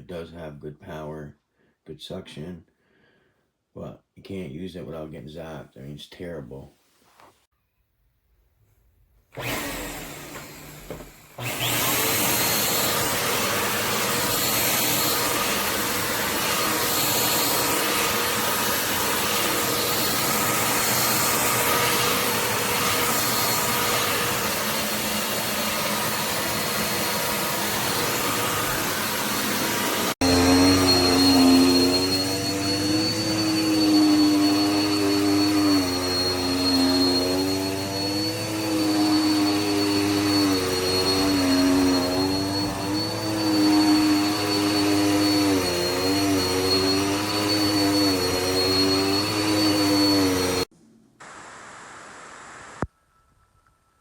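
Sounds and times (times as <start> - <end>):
vacuum cleaner motor rushing: 9.3 - 50.7
motor whine wavering: 9.4 - 52.9.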